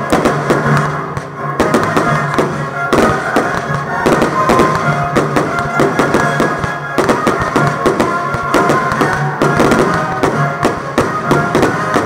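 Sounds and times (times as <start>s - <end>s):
fireworks launching and bursting: 0.0s - 12.0s
music with a steady beat: 0.0s - 12.0s.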